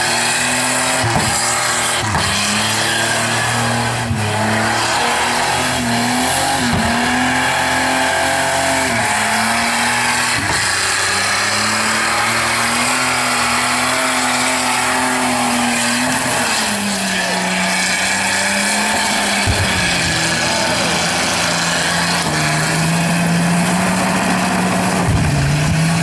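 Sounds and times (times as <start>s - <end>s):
car engine revving high: 0.0s - 26.0s.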